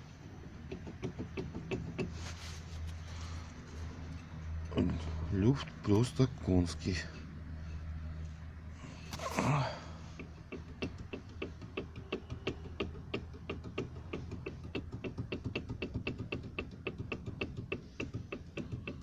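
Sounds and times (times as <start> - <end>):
rapid knocking of wheel bearing: 0.1 - 2.2, 9.9 - 19.0.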